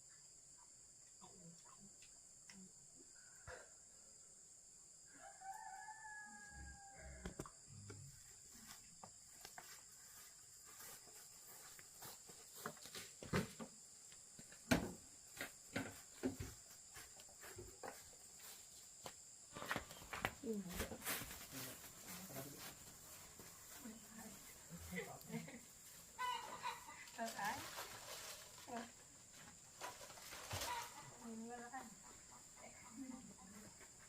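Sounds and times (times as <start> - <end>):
rooster crowing: 5.1 - 7.4.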